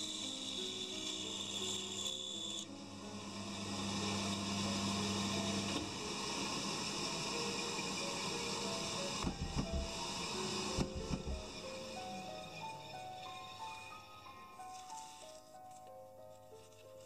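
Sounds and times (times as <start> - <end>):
band saw motor hum: 0.0 - 15.3
band saw blade whine: 0.0 - 15.5.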